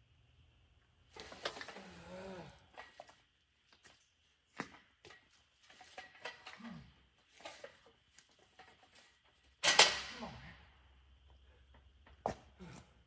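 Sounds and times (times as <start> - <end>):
person grunting: 2.0 - 2.7.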